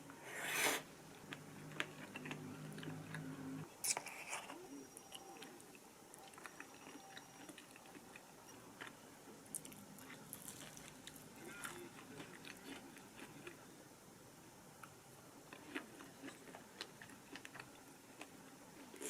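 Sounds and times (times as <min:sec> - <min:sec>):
person chewing: 0:08.8 - 0:13.6, 0:15.5 - 0:19.0.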